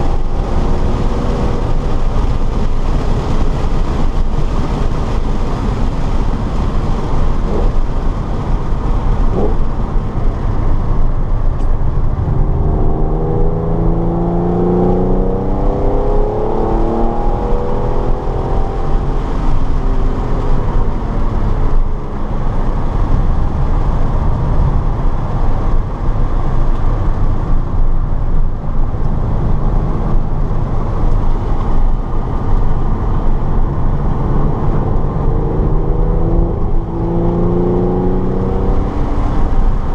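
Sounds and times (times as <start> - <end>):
wind and tyre noise: 0.0 - 39.9
race car engine revving: 29.4 - 39.9.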